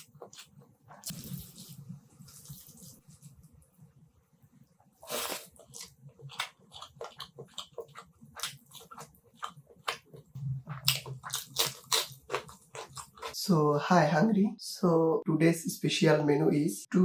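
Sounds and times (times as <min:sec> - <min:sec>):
biting and chewing food: 0:05.4 - 0:13.4.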